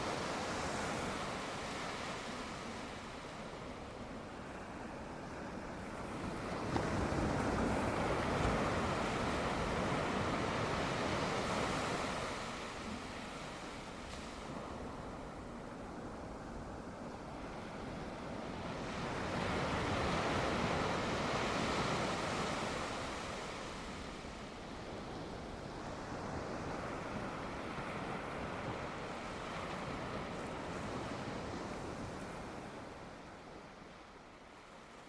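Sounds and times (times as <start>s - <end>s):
sea waves breaking on shore: 0.0s - 35.0s.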